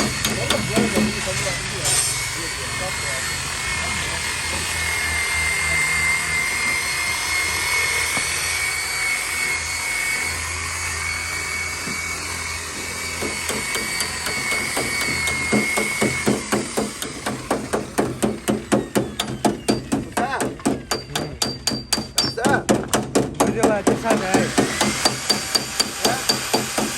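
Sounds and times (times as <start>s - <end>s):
hammer tapping sheet metal: 0.0s - 1.2s, 13.2s - 26.9s
power tool whine: 0.0s - 22.5s, 23.1s - 26.9s.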